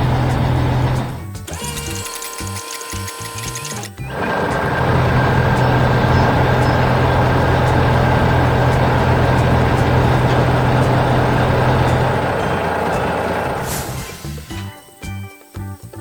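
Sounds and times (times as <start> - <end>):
heavy vehicle engine running: 0.0 - 1.9, 4.0 - 14.6.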